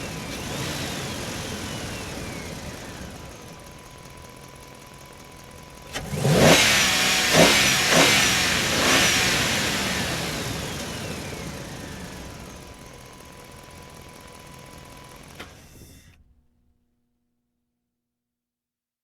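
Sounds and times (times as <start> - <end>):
engine revving: 0.0 - 3.8, 5.8 - 13.1.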